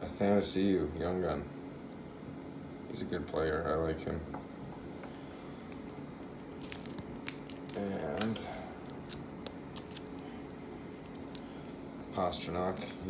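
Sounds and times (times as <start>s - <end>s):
plastic packaging crinkling: 5.8s - 13.0s.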